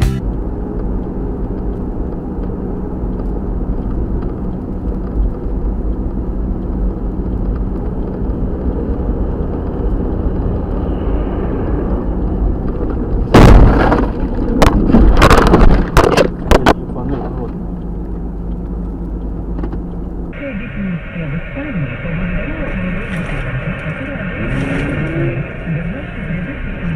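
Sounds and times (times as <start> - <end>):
car road and engine rumble: 0.0 - 26.9
vehicles crashing: 9.7 - 17.5
bangs and crunches of collision: 13.3 - 16.8.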